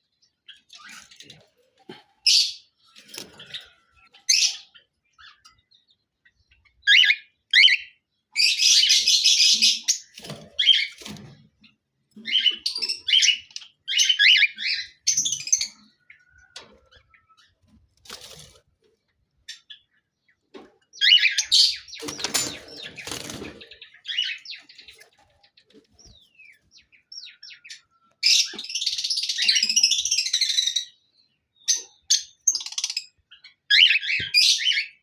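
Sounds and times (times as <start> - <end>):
cockatiels chirping: 6.6 - 10.9, 12.2 - 15.7, 32.0 - 35.0.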